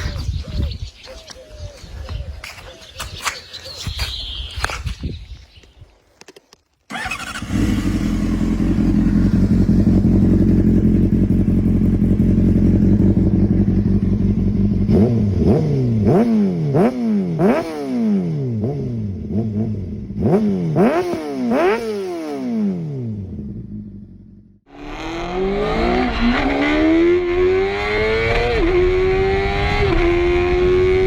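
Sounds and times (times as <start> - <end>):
motorcycle engine idling: 6.9 - 16.1
motorcycle engine revving: 6.9 - 31.0.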